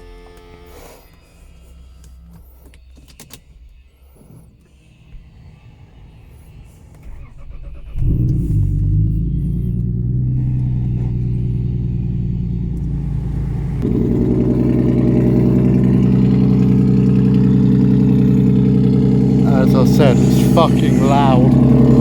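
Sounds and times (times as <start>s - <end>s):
car engine idling: 1.4s - 22.0s
starter motor cranking: 6.9s - 22.0s.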